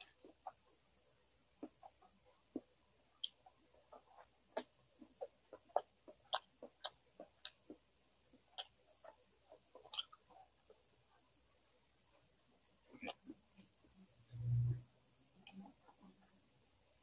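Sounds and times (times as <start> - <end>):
person chewing with mouth clicks: 1.6 - 7.8, 8.4 - 10.6, 12.8 - 13.8.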